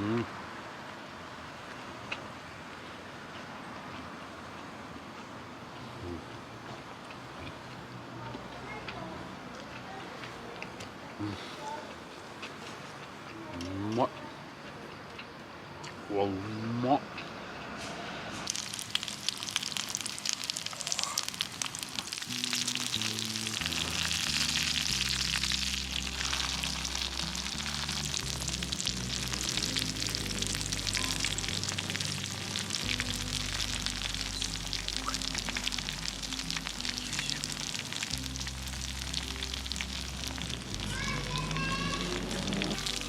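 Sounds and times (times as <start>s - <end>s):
food sizzling in hot oil: 18.5s - 43.0s
background music with bass: 22.3s - 43.0s.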